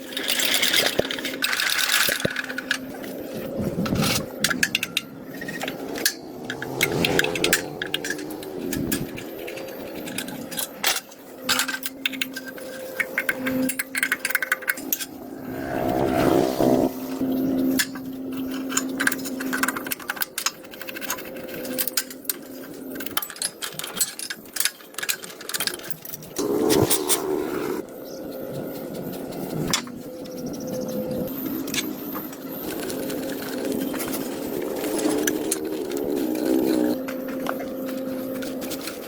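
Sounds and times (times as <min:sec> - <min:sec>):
rapid metallic clicks and rattles: 0:00.0 - 0:15.4, 0:17.1 - 0:27.2
steady hum: 0:00.0 - 0:23.2.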